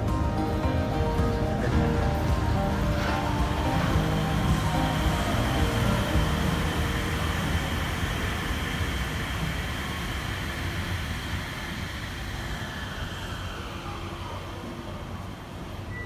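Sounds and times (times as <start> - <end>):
train running noise: 0.0 - 16.0.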